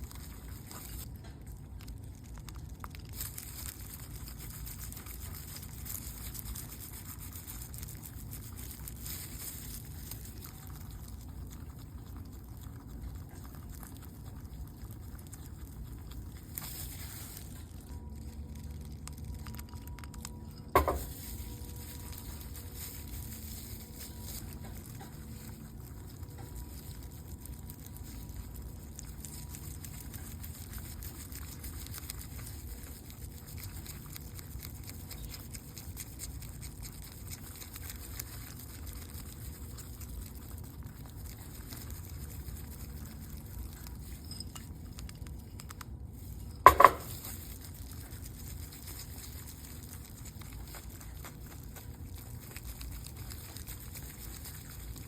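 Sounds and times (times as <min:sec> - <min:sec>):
spoon stirring chocolate in bowl: 0:20.4 - 0:21.3, 0:46.5 - 0:47.2.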